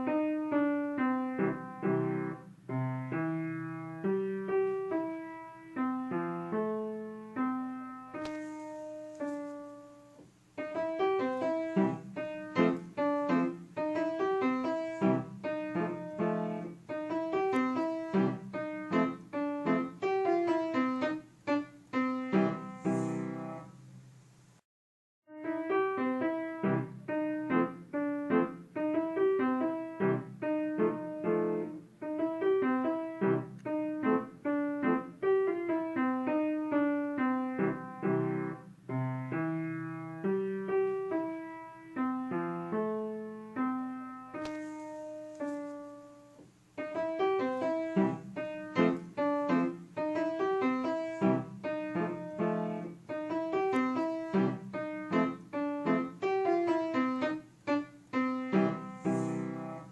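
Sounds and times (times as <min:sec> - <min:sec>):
solo piano music: 0:00.0 - 0:24.6, 0:25.3 - 0:59.9.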